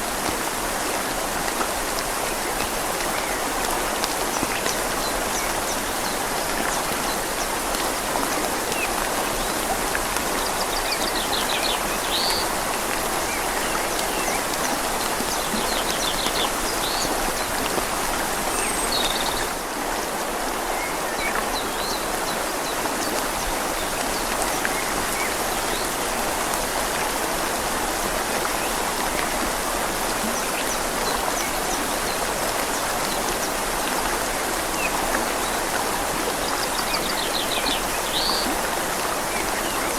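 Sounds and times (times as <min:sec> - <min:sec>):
rain falling on leaves: 0:00.0 - 0:39.9
river flowing: 0:00.0 - 0:39.9.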